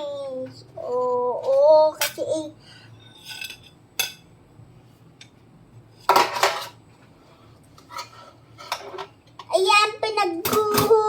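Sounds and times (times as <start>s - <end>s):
dishes and cutlery clattering: 3.0s - 4.3s, 6.0s - 6.8s, 7.9s - 9.2s.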